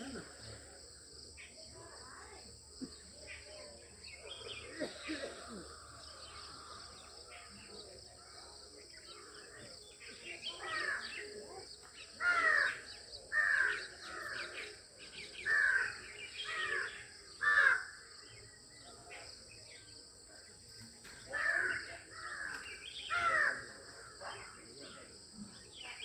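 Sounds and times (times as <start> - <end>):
bird harsh caw-like calls: 12.2 - 18.4, 21.3 - 24.6.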